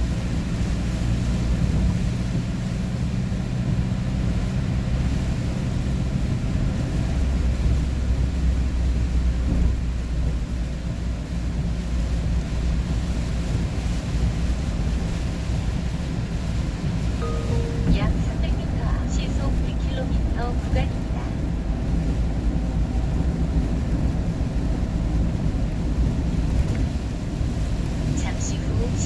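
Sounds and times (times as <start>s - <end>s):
road and wind noise: 0.0s - 29.0s
vehicle engine drone: 17.6s - 29.0s.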